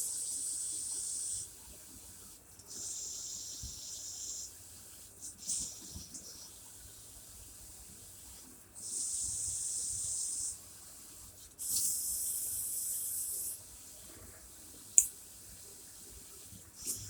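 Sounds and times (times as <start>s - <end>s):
spray bottle hissing: 11.6s - 13.6s, 16.8s - 17.0s.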